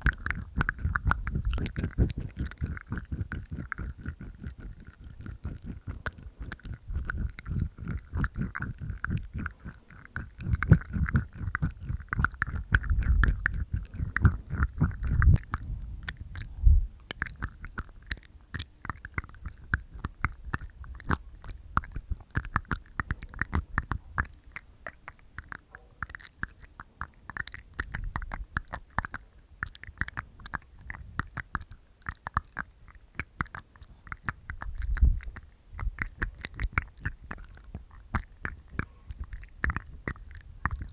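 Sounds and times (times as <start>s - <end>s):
teeth clicks: 0.0s - 40.9s
wet tongue clicks: 0.0s - 40.9s.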